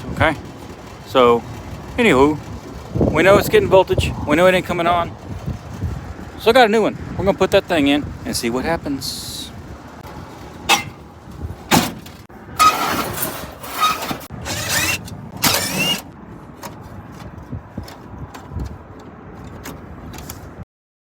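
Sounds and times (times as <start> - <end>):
power tool motor whirring: 13.7 - 16.1.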